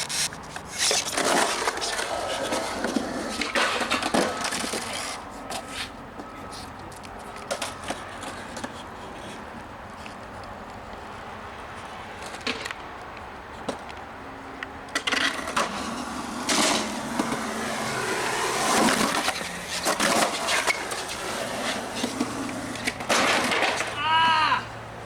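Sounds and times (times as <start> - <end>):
skateboard rolling: 0.0 - 25.0
skateboard clacks and knocks: 0.6 - 5.7, 14.9 - 24.5.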